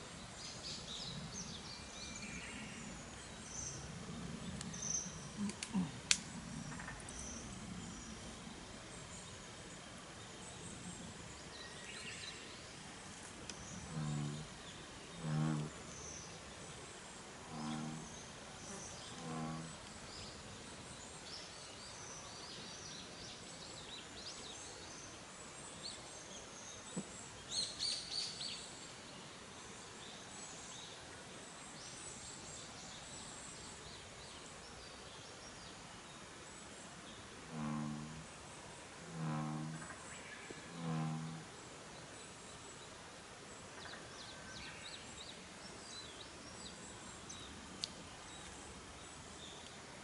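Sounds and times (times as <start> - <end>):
low deep animal calls: 5.3 - 6.1, 13.8 - 14.6, 15.2 - 15.8, 17.4 - 18.1, 19.1 - 19.8, 37.5 - 38.3, 39.0 - 39.9, 40.7 - 41.5
campfire crackling: 5.4 - 6.4
birds chirping: 13.6 - 16.4, 17.5 - 20.4.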